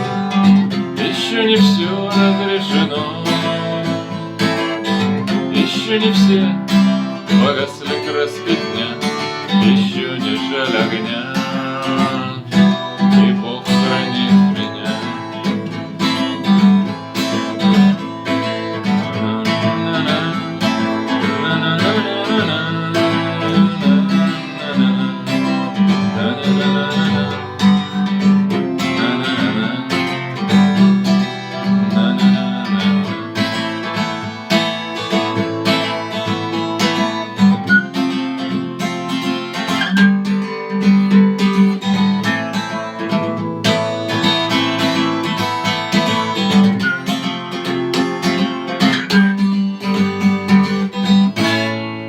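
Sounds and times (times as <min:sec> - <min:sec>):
guitar strumming: 0:00.0 - 0:52.0.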